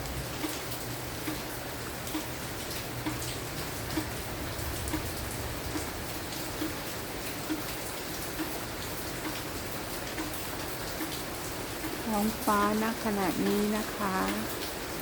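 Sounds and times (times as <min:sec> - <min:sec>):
rain pattering: 0:00.0 - 0:15.0
soft regular tick: 0:09.2 - 0:09.5.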